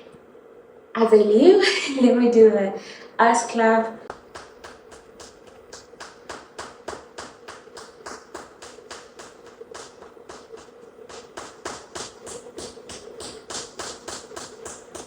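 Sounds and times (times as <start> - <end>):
buttock cheeks slapping: 4.1 - 15.0.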